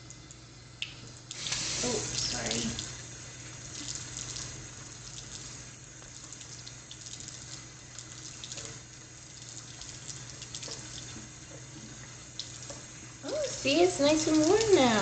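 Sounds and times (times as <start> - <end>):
bathtub tap running: 0.0 - 15.0
water splashing: 12.4 - 15.0.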